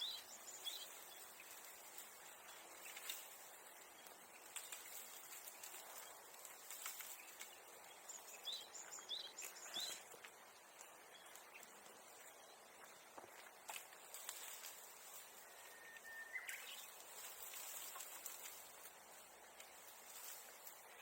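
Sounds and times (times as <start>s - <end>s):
bird chirping: 0.0s - 13.0s, 15.0s - 18.2s.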